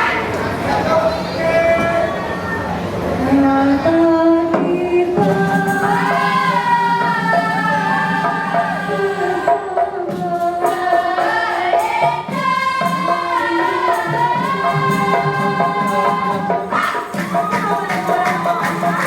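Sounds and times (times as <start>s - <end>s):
choir singing: 3.2s - 19.0s
percussion beat: 4.5s - 19.0s.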